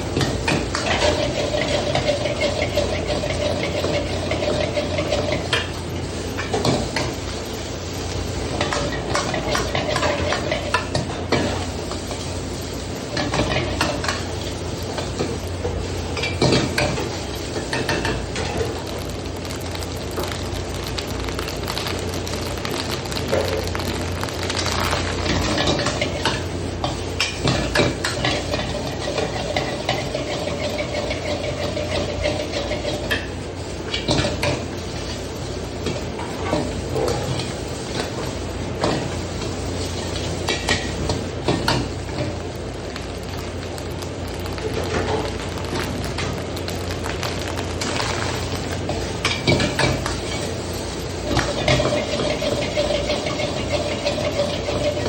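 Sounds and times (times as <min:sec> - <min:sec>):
steady low hum: 0:00.0 - 0:44.6
food sizzling: 0:00.0 - 0:55.0.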